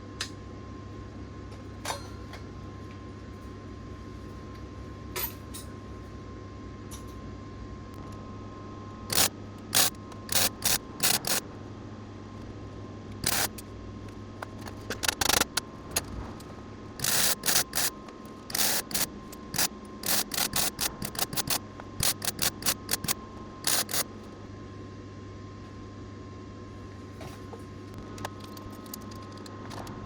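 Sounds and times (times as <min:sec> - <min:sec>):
steady low hum: 0:00.0 - 0:30.0
welding crackle bursts: 0:09.1 - 0:11.4, 0:13.2 - 0:13.6, 0:14.8 - 0:15.6, 0:17.0 - 0:17.9, 0:18.5 - 0:24.0.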